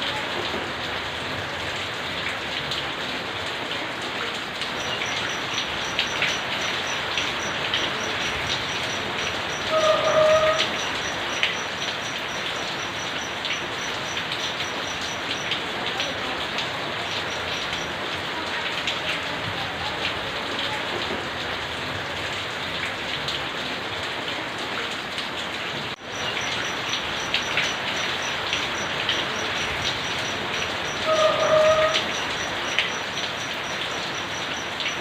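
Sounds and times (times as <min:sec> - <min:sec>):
steady rain falling: 0:00.0 - 0:35.0
drops ticking on hard surfaces: 0:04.7 - 0:09.7, 0:10.6 - 0:18.0, 0:26.0 - 0:31.1, 0:31.9 - 0:35.0.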